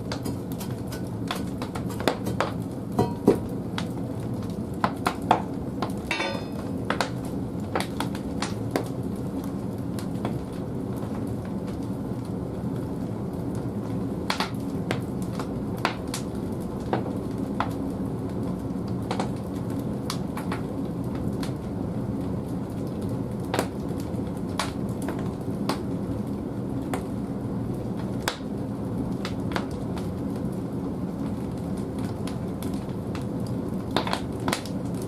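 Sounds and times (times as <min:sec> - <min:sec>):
fire rushing in boiler: 0:00.0 - 0:35.0
logs crackling and popping: 0:00.0 - 0:35.0.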